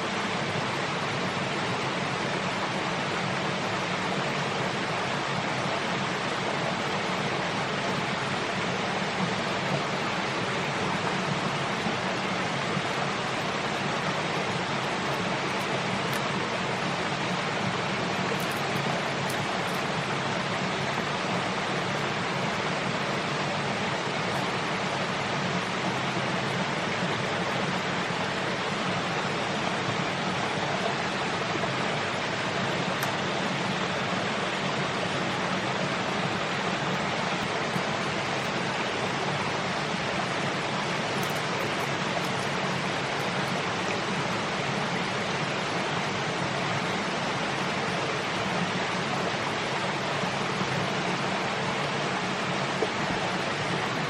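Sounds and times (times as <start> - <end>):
water rushing: 0.0 - 54.0.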